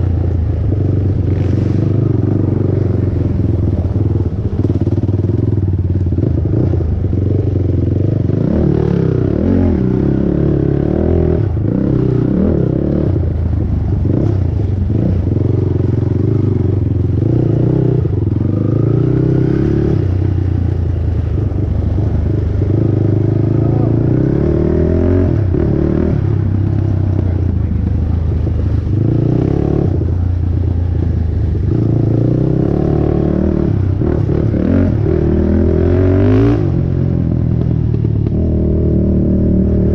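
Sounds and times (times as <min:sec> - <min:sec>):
quad engine revving: 0:14.1 - 0:20.4, 0:21.2 - 0:30.2, 0:31.0 - 0:39.9.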